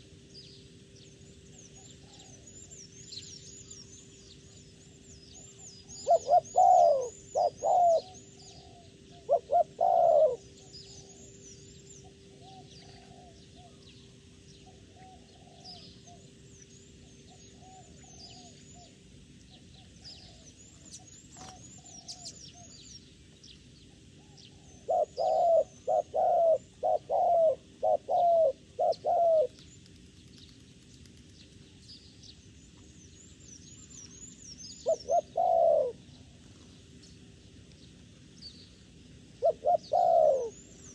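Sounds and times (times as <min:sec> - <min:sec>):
small birds chirping faintly: 0:00.0 - 0:40.9
dove cooing: 0:05.9 - 0:11.4, 0:12.0 - 0:13.9, 0:14.7 - 0:16.3, 0:24.2 - 0:29.6, 0:34.8 - 0:36.4, 0:39.4 - 0:40.9.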